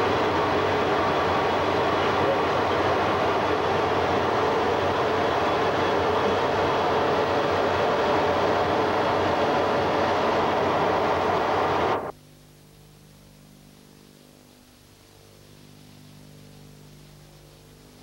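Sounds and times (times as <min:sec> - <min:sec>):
jet aircraft cabin roar: 0:00.0 - 0:12.1
quiet steady hum: 0:00.0 - 0:18.0.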